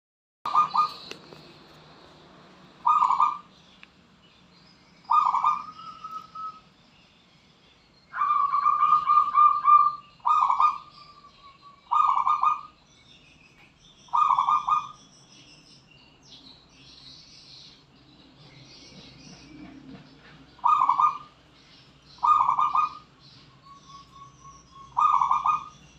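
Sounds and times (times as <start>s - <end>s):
dove cooing: 0.5s - 1.5s, 2.8s - 3.5s, 5.1s - 6.6s, 8.1s - 12.8s, 14.1s - 15.0s, 20.6s - 21.4s, 22.2s - 25.9s.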